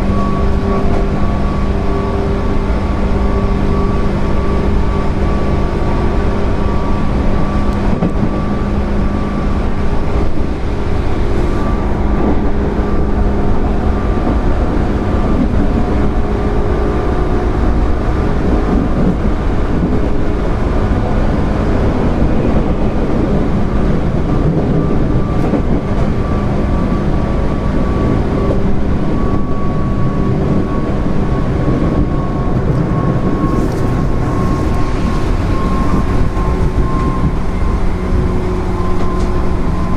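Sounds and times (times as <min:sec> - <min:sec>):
electric train hum: 0:00.0 - 0:39.9
train wheels rumbling on rail: 0:00.0 - 0:39.9.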